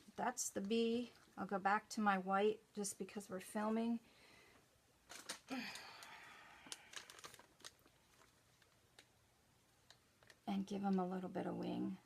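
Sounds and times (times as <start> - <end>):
plastic piping bag crinkling: 5.0 - 11.4.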